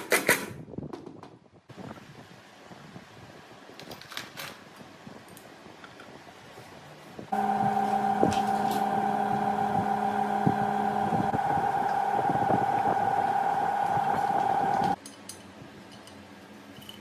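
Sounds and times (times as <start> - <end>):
power tool motor whining: 7.4 - 15.0.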